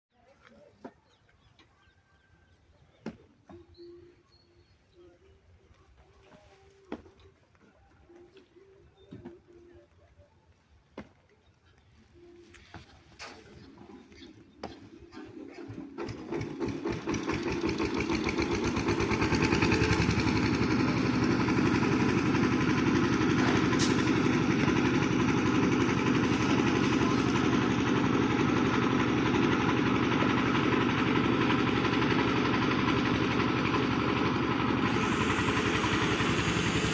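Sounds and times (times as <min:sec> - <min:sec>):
engine starting up: 0:15.0 - 0:36.9.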